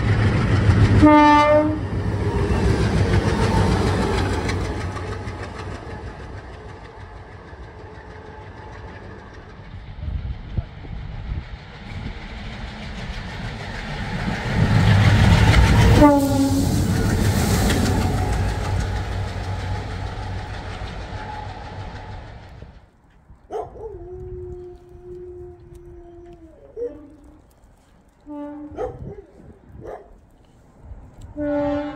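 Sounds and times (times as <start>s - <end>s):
diesel locomotive engines running: 0.0s - 23.4s
two-note horn: 1.0s - 1.8s, 16.0s - 16.7s
locomotive horn: 1.0s - 2.0s, 15.6s - 16.9s, 28.2s - 29.2s, 31.3s - 31.9s
wheels clattering on rails: 1.9s - 23.6s.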